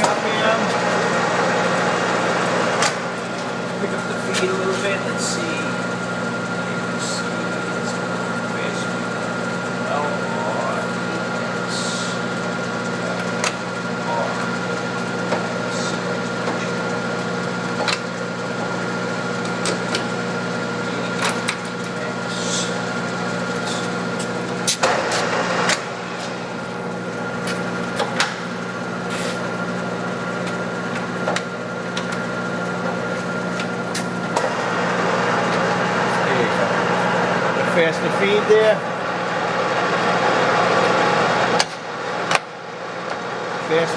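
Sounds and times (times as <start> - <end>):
lathe gear hum: 0.0 - 43.9
ticks and hissy scrapes of cutting: 20.8 - 39.0.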